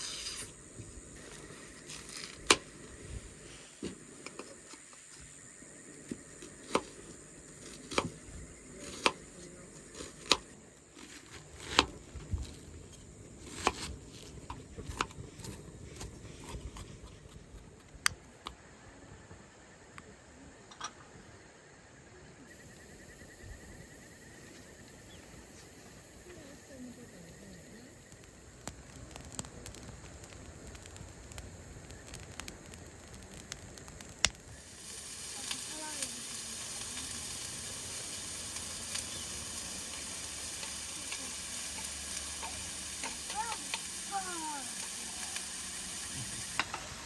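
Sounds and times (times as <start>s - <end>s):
food sizzling in a pan: 0.0s - 12.7s, 28.1s - 47.0s.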